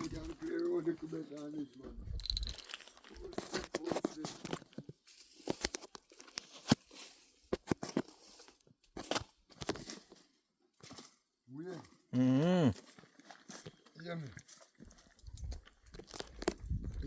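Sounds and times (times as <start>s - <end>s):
crunching and crackling clicks: 2.2s - 10.1s, 15.1s - 17.0s.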